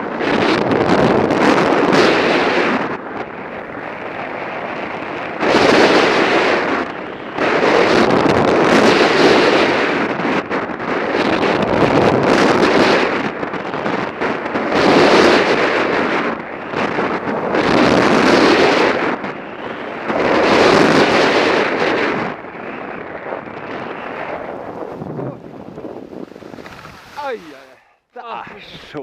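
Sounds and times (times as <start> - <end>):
wind on microphone: 0.0 - 29.0
skis carving on snow: 3.7 - 27.8.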